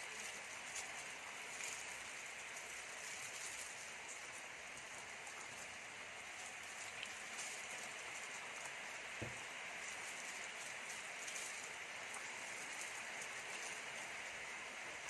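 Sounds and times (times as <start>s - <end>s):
faint rain-like hiss: 0.0s - 15.0s
soft low thump: 9.2s - 9.4s.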